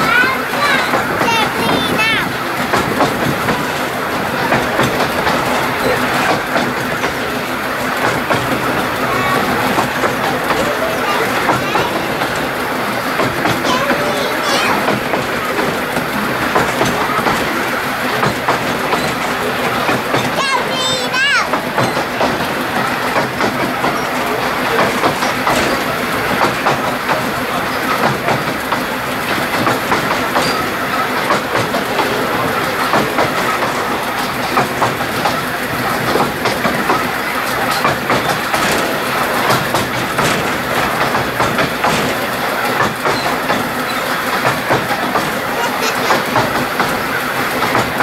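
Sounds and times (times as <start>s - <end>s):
train wheels clattering over rail joints: 0.0s - 48.0s.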